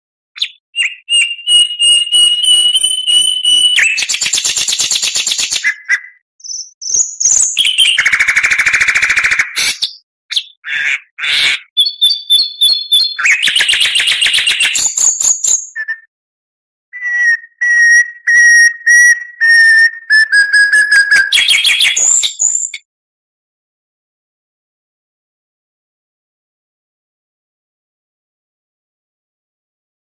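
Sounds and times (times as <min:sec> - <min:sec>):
bird singing buzzy trills: 0:00.4 - 0:08.4, 0:17.0 - 0:22.8
bird whistled notes: 0:00.4 - 0:10.6, 0:11.8 - 0:16.1, 0:17.0 - 0:22.8.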